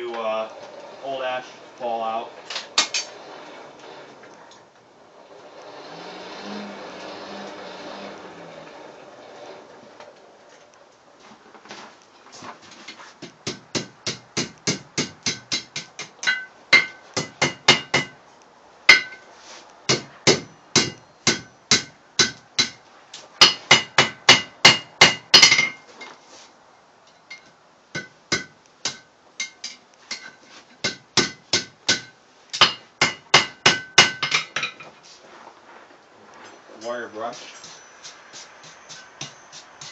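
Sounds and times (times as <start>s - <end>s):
hammer striking steel on anvil: 13.2s - 18.2s, 18.9s - 19.3s, 19.9s - 22.8s, 23.4s - 25.8s, 27.3s - 34.7s, 37.6s - 39.9s.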